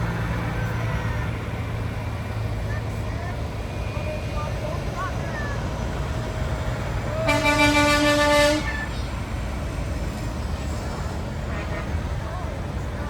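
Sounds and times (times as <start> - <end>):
low engine rumble: 0.0 - 13.0
truck air horn blast: 7.2 - 8.9, 11.4 - 12.0.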